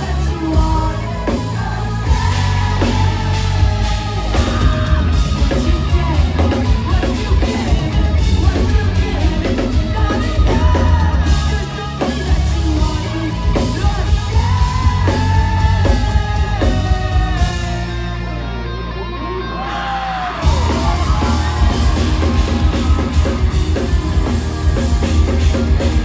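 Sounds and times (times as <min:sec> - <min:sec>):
person singing: 0:00.0 - 0:17.9
live rock band: 0:00.0 - 0:26.0.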